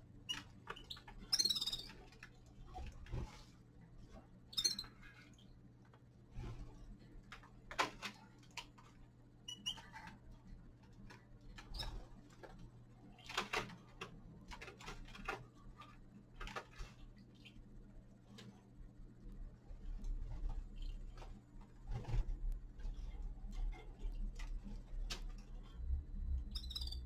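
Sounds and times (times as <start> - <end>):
steady low hum: 0.0 - 27.0
finches pecking and hopping: 0.2 - 2.8, 4.5 - 5.2, 9.5 - 10.3, 10.9 - 17.8, 26.4 - 27.0
high bird chirps: 0.8 - 1.9, 26.4 - 27.0.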